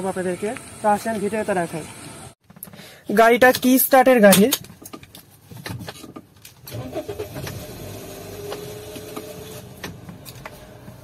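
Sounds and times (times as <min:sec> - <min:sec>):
car engine cranking: 0:06.5 - 0:11.0.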